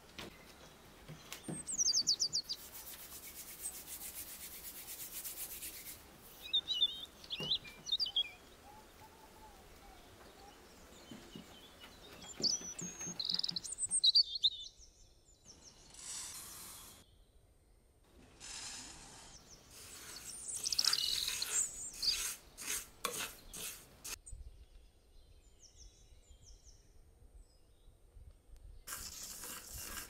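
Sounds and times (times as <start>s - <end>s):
songbirds chirping: 0.0s - 16.1s, 19.3s - 28.9s.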